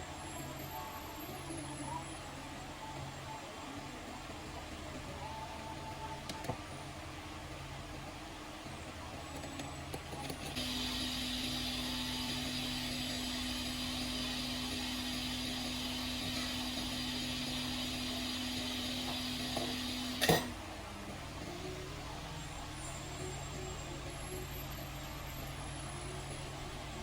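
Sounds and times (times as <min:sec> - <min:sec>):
small electric motor humming: 0:10.4 - 0:20.4.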